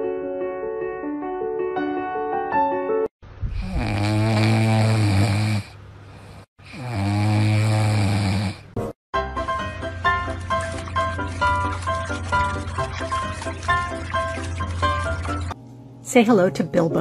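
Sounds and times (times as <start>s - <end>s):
puppy snoring: 3.5s - 8.8s.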